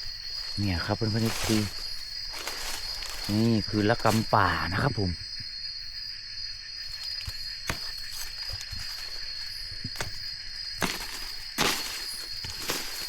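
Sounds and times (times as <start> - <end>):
leaves and twigs crackling: 0.0 - 5.1, 6.5 - 13.0
insects droning: 0.0 - 13.0.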